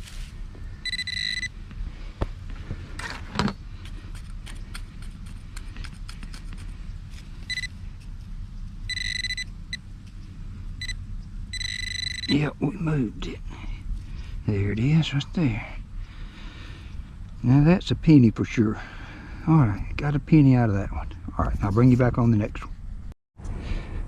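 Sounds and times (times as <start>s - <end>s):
digging and scraping soil: 0.0s - 1.5s, 2.5s - 10.9s
metal detector beeping: 0.8s - 1.6s, 7.4s - 7.8s, 8.9s - 9.8s, 10.8s - 12.4s.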